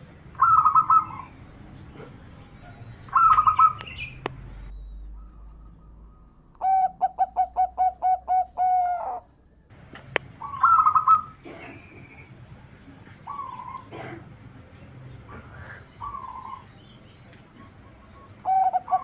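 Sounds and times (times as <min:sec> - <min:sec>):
trilled bird calls: 0:00.0 - 0:09.4, 0:10.1 - 0:19.0
dove cooing: 0:00.3 - 0:04.2, 0:05.1 - 0:09.3, 0:10.2 - 0:12.2, 0:13.1 - 0:14.5, 0:15.2 - 0:16.7, 0:17.4 - 0:19.0.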